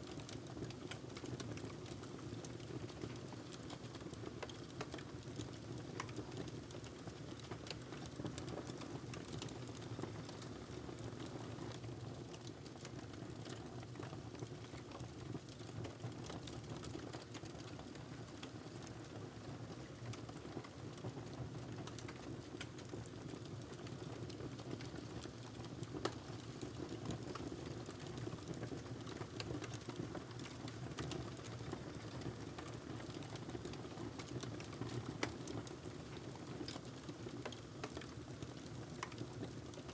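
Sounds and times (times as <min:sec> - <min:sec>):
fire crackles and pops: 0:00.1 - 0:39.9
wood fire rumbling: 0:26.8 - 0:39.8.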